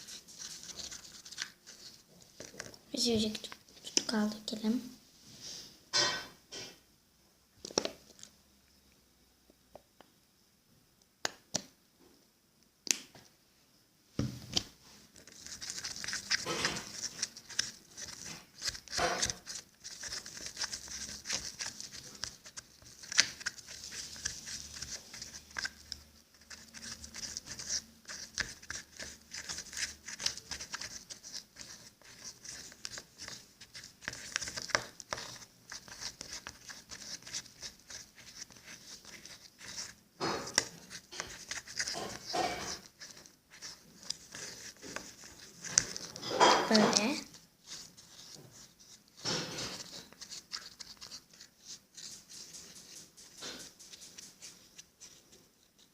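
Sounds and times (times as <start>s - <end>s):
slime sticky crackling: 15.2s - 53.3s.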